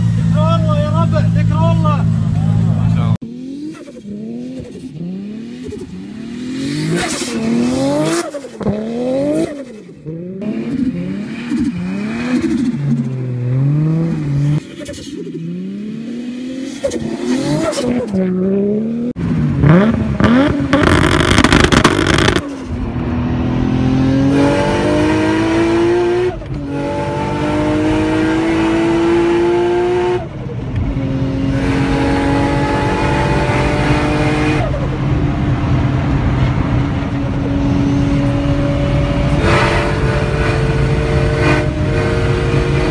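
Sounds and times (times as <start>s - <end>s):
car engine revving: 0.0s - 42.9s
engine at full throttle: 18.6s - 42.9s.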